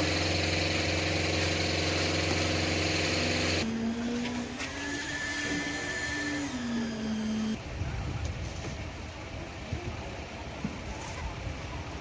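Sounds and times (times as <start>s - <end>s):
machine motor humming: 0.0s - 7.6s
low rumble of site noise: 3.4s - 12.0s.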